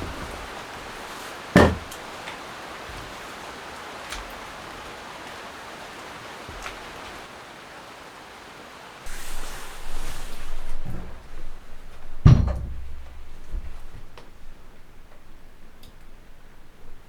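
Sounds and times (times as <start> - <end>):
rain hissing: 0.0 - 17.0.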